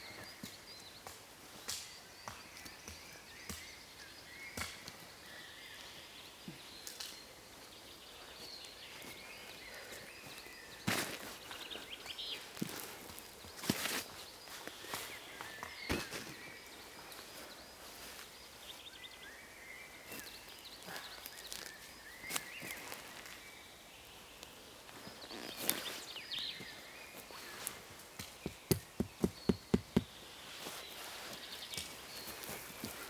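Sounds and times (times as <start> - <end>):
birds chirping: 2.0 - 33.0
rustles on forest floor: 4.6 - 33.0
sharp knocks: 28.5 - 30.1.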